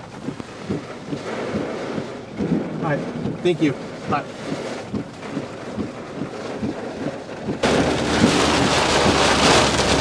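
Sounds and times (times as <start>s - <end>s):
faint rain taps: 0.0s - 10.0s
heavy rain on a car: 0.0s - 10.0s
low vehicle hum: 0.0s - 10.0s.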